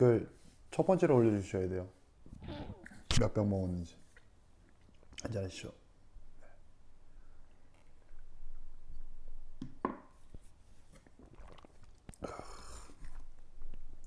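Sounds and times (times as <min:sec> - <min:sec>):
person chewing: 0:11.0 - 0:14.0.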